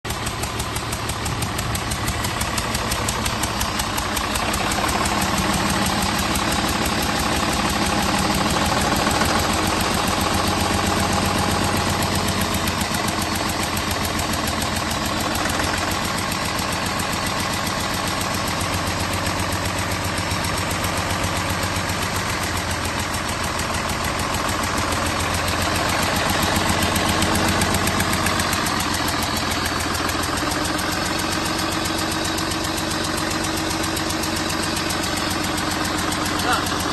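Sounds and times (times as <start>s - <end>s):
diesel engine idling: 0.0s - 36.9s.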